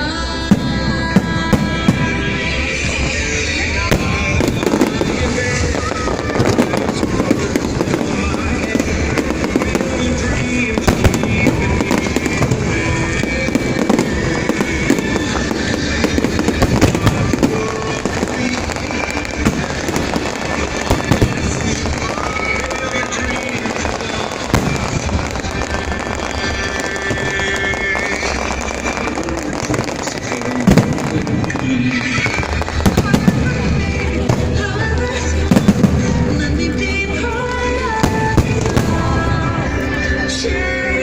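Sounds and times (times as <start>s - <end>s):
fireworks bursting and crackling: 0.0s - 41.0s
music playing: 0.0s - 41.0s.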